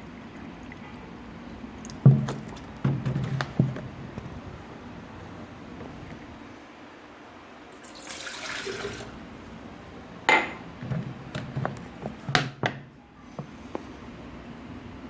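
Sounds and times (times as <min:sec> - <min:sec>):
water pouring: 0:07.7 - 0:09.3
kitchenware clinking and knocking: 0:10.3 - 0:12.9.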